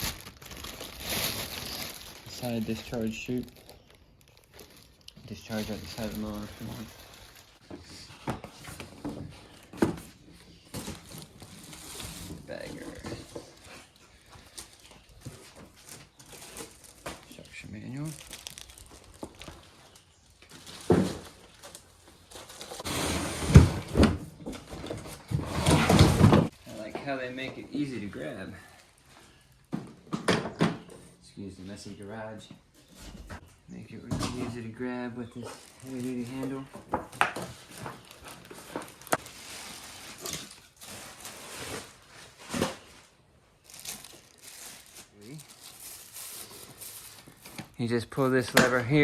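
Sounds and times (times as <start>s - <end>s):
packaging rustling: 0.0s - 7.6s, 10.7s - 22.8s, 35.5s - 47.8s
cardboard scraping and rustling: 19.2s - 26.9s, 35.4s - 43.2s.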